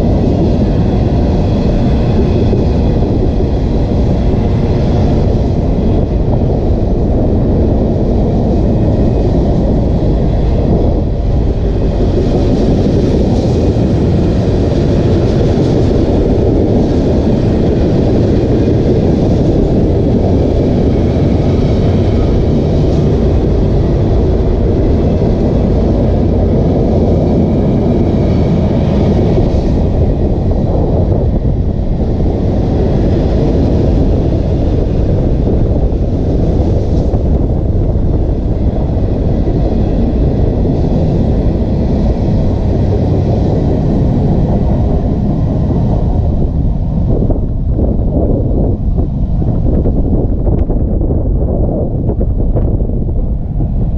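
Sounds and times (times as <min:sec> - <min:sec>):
freight train rumbling past: 0:00.0 - 0:53.9.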